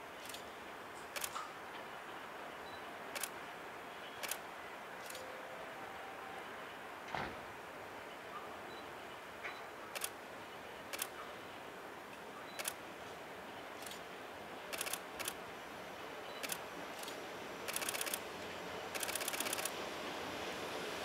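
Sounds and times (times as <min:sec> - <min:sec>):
camera shutters clicking: 0:01.1 - 0:01.4, 0:10.0 - 0:10.2, 0:10.9 - 0:11.1, 0:12.6 - 0:12.8, 0:14.7 - 0:15.4, 0:16.4 - 0:18.2, 0:19.0 - 0:19.7.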